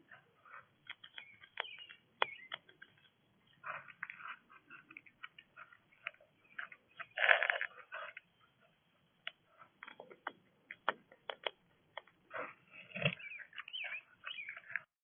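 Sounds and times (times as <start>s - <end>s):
bird chirps: 0.0s - 10.9s, 12.3s - 14.9s
small clicks and taps: 0.8s - 3.2s, 9.2s - 12.2s.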